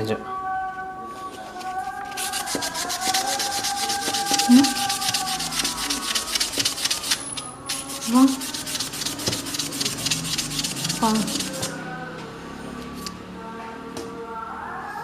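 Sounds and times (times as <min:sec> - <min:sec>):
hand sanding strokes: 0:02.0 - 0:11.8.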